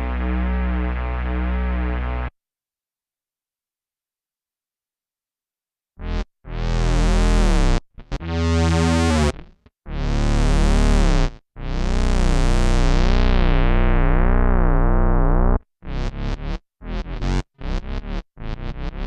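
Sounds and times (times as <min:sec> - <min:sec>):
buzzy synth bass notes: 0:00.0 - 0:02.3, 0:06.0 - 0:19.0.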